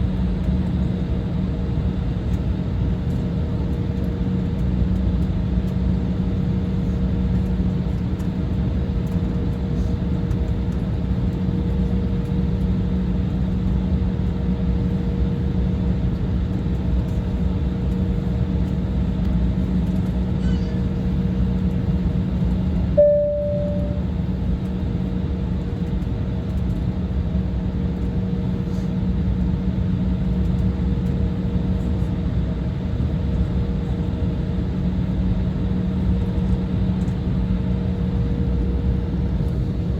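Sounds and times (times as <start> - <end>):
airliner cabin engine hum: 0.0 - 39.9
short chime tone: 23.0 - 24.1.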